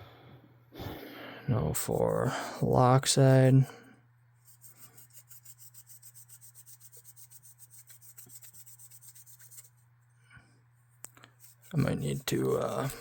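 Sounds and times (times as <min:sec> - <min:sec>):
pad scrubbing metal: 0:04.4 - 0:09.8, 0:11.2 - 0:13.0.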